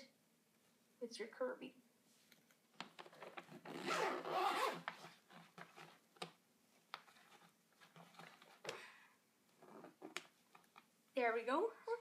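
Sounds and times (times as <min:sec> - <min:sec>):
zipper on cloth bag: 0:03.5 - 0:05.1.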